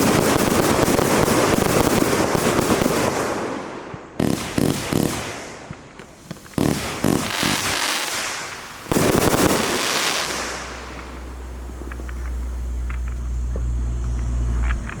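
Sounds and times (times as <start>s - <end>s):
firework bursting and crackling: 0.0s - 15.0s
low rumble: 10.4s - 15.0s.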